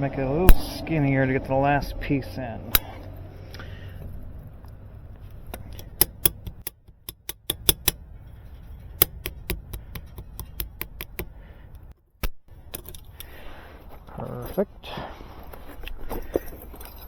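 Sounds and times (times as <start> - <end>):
low steady rumble: 0.0 - 17.0
clicks of small hard parts: 5.5 - 8.0, 8.8 - 13.4.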